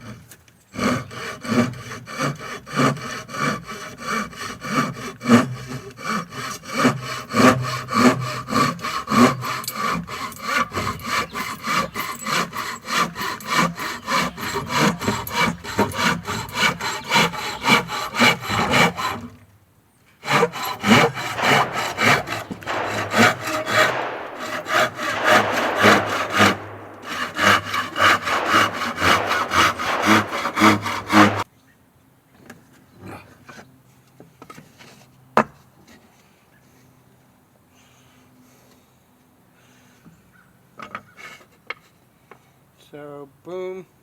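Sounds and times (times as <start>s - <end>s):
hand saw cutting wood: 0.0s - 19.4s, 20.2s - 31.5s.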